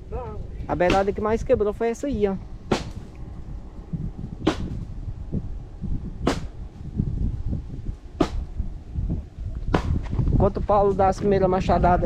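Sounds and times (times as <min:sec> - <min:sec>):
axe chopping firewood: 0:00.8 - 0:01.2, 0:02.7 - 0:03.1, 0:04.4 - 0:04.8, 0:06.2 - 0:06.5, 0:08.2 - 0:08.5, 0:09.7 - 0:10.2.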